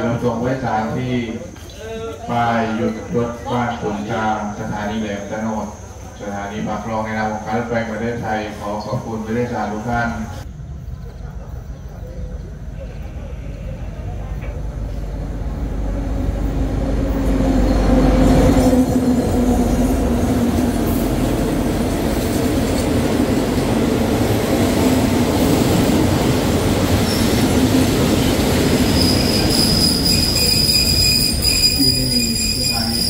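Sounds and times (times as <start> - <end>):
train wheels rumbling on rail: 7.9 - 33.0
high brake squeal: 28.9 - 33.0.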